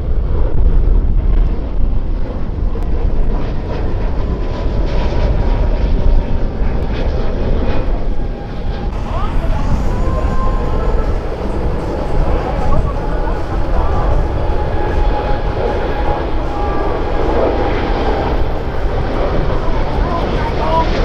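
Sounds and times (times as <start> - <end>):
jet engines roaring: 5.4 - 21.0
faint whine: 7.1 - 21.0.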